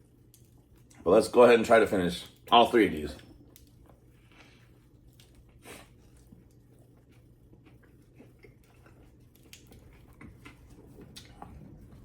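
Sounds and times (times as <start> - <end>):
person chewing food: 0.0 - 1.0, 3.2 - 12.0
soft mouth clicks and smacks: 3.2 - 11.7.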